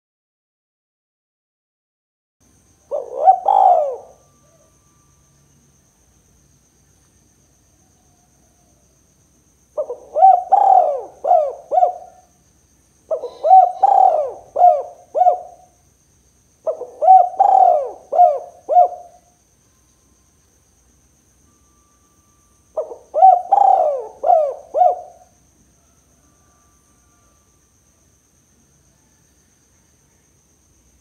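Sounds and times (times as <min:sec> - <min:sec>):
dove cooing: 0:02.9 - 0:04.7, 0:09.8 - 0:12.3, 0:13.1 - 0:15.8, 0:16.6 - 0:19.3, 0:22.8 - 0:25.4.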